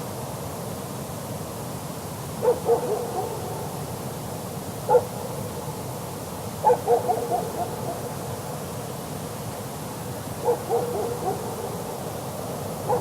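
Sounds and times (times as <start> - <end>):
steady hiss: 0.0 - 13.0
distant dog barking: 2.4 - 3.8, 4.9 - 5.8, 6.6 - 8.2, 10.4 - 12.2, 12.8 - 13.0.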